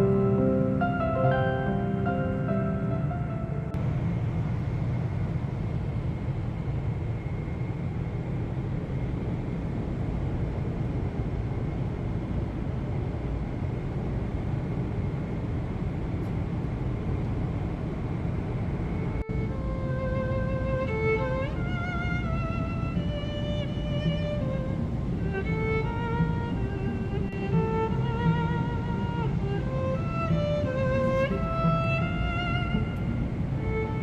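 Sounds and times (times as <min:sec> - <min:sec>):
airliner cabin rumble: 0:00.0 - 0:34.0.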